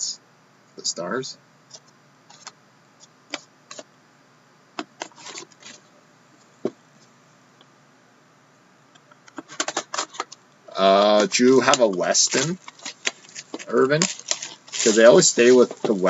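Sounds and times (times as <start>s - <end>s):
cards clicking and rustling: 1.7s - 3.9s, 4.8s - 5.8s, 9.3s - 16.0s.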